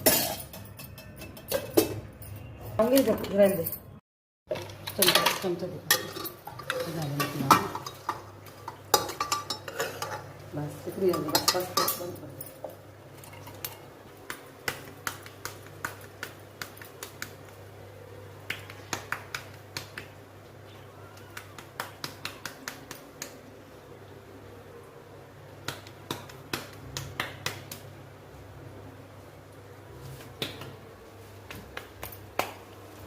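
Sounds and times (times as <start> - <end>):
kitchen utensils clicking: 0.0 - 3.9, 4.5 - 17.3.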